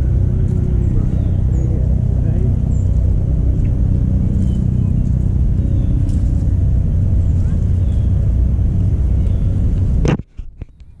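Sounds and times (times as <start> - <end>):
engine rumbling: 0.0 - 11.0.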